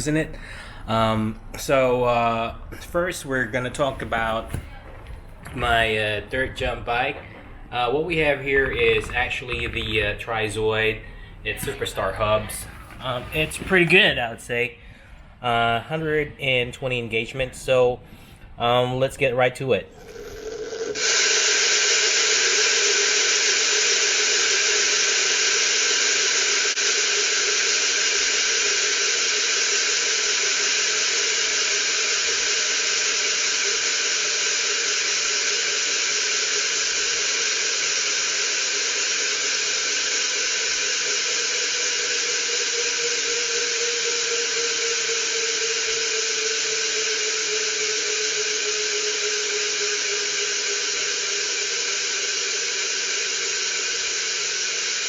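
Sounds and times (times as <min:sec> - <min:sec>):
bicycle hub freewheeling buzz: 0:20.0 - 0:55.0.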